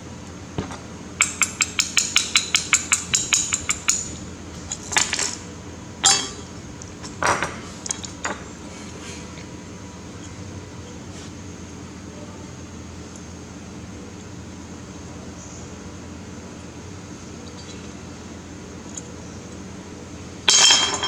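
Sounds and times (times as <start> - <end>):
metal clinks and scrapes: 20.5 - 21.0.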